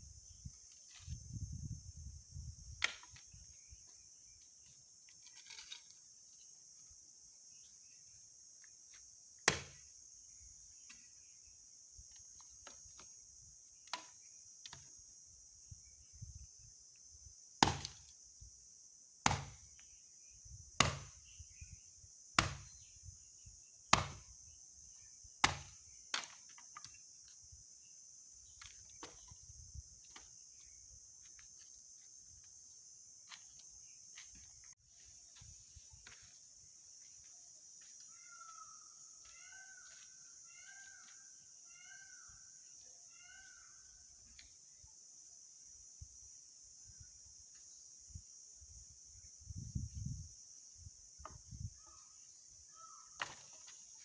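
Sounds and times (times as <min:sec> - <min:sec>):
insects buzzing: 0:00.0 - 0:54.0
axe chopping wood: 0:02.8 - 0:03.2, 0:09.4 - 0:09.9, 0:17.6 - 0:18.1, 0:19.2 - 0:19.7, 0:20.8 - 0:21.2, 0:22.4 - 0:22.7, 0:23.9 - 0:24.3, 0:25.4 - 0:26.6, 0:53.2 - 0:53.7.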